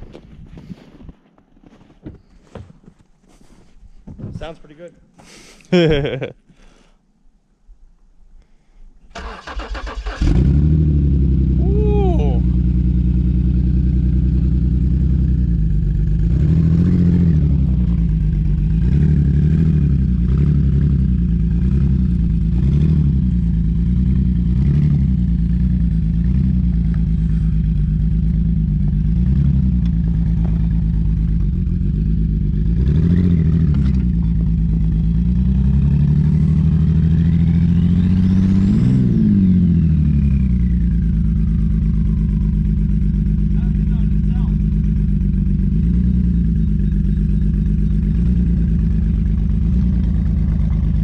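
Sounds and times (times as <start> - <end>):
car engine revving: 9.2 - 51.0
turbo whine: 44.6 - 51.0.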